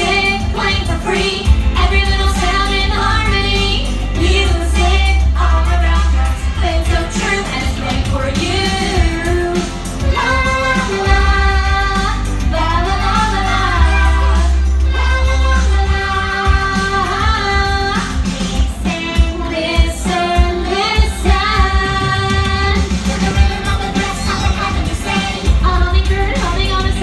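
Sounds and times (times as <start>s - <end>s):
bass line: 0.0s - 27.0s
high singing voice: 0.0s - 27.0s.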